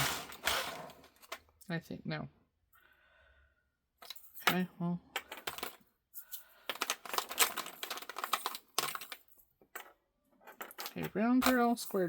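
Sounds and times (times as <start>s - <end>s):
plastic containers clicking and rattling: 5.2s - 5.8s, 6.7s - 9.9s, 10.5s - 12.0s.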